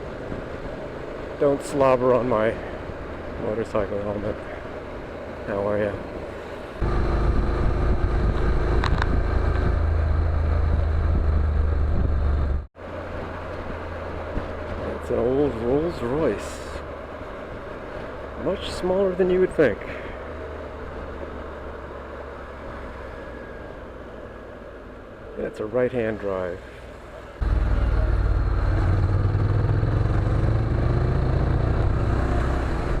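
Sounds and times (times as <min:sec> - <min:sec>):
motorcycle engine and exhaust: 0:06.8 - 0:14.7, 0:27.4 - 0:33.0
motorcycle engine droning: 0:27.4 - 0:33.0.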